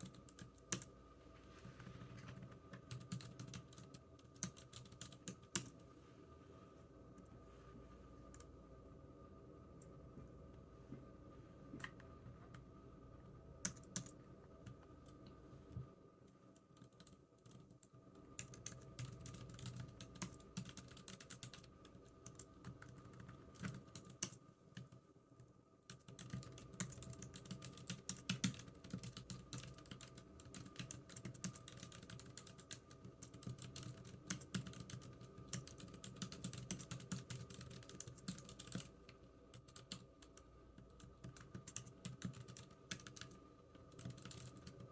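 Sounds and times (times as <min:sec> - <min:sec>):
typing on computer keyboard: 0:00.0 - 0:00.9, 0:02.2 - 0:05.8, 0:13.6 - 0:15.2, 0:16.6 - 0:44.9.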